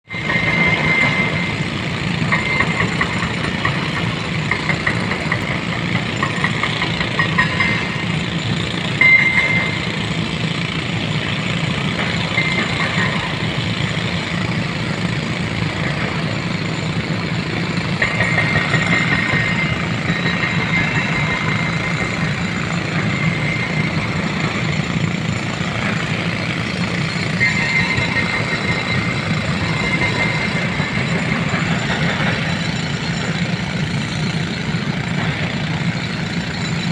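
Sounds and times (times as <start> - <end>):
excavator diesel engine running: 0.1 - 36.9
high squeals: 16.4 - 36.9.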